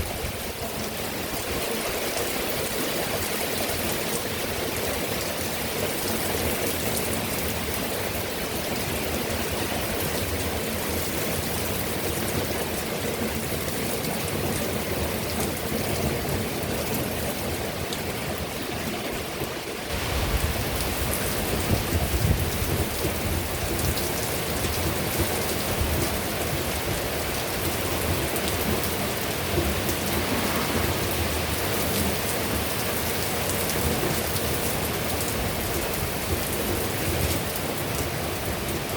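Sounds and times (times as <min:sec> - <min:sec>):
heavy rain pouring: 0:00.0 - 0:38.9
thunder rumbling: 0:19.9 - 0:23.4, 0:27.6 - 0:33.6.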